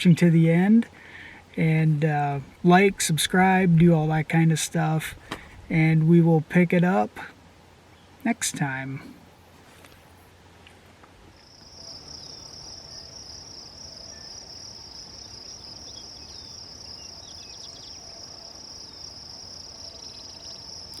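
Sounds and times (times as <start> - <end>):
crickets trilling: 11.3 - 21.0
faint bird chirps: 11.4 - 21.0.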